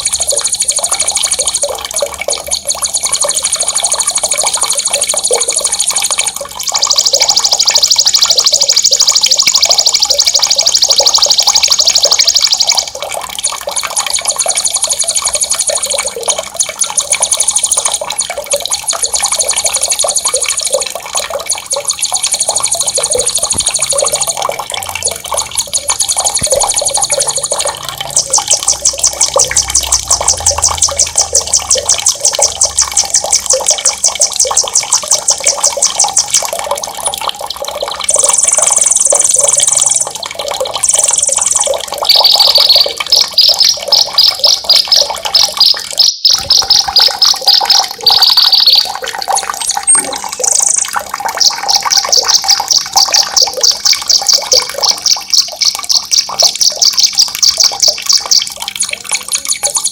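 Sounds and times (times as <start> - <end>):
running water: 0.0 - 59.9
songbird singing fast trills: 38.1 - 40.2, 40.8 - 44.8, 45.4 - 49.0, 49.8 - 51.0.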